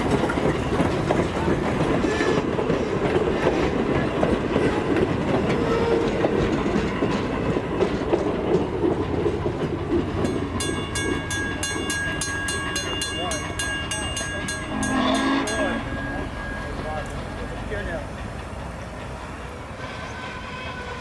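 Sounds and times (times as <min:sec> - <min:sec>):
train wheels clacking over rail joints: 0:00.0 - 0:21.0
railroad crossing bell ringing: 0:09.9 - 0:19.6.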